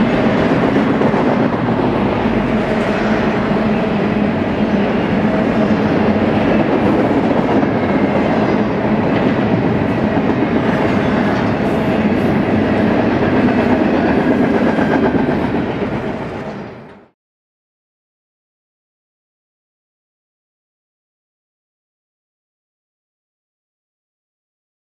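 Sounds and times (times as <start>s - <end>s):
steel wheels on rails: 0.0s - 17.2s.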